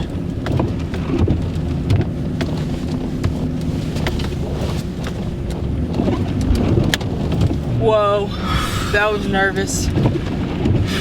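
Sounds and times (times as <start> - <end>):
truck engine hum: 0.0 - 11.0
tyres in slush: 0.8 - 11.0.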